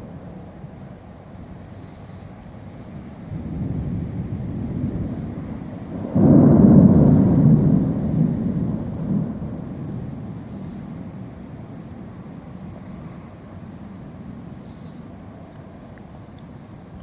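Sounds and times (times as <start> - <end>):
thunder rumbling: 2.7 - 14.9.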